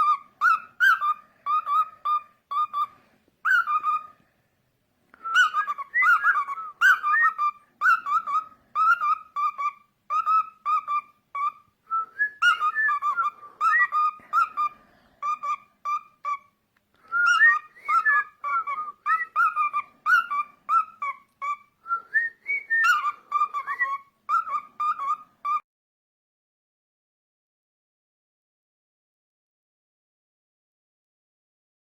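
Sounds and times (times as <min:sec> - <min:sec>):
cockatiel whistling: 0:00.0 - 0:04.2, 0:05.2 - 0:25.6.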